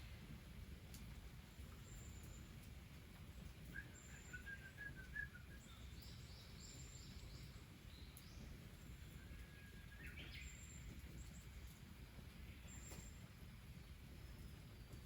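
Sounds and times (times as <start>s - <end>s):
faint birdsong chirps: 1.3s - 15.0s.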